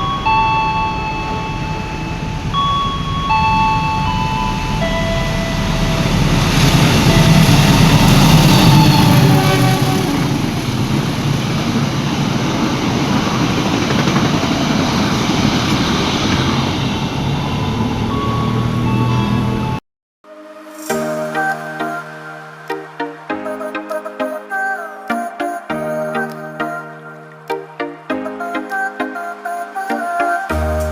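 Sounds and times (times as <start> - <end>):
train wheels rumbling on rails: 1.3 - 19.7.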